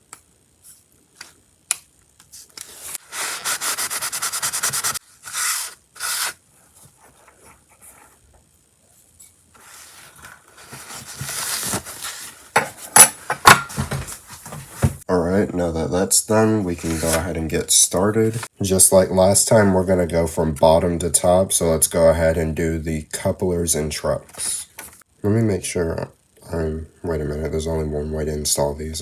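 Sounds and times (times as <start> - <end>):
rubbing strokes on small part: 2.6 - 6.4.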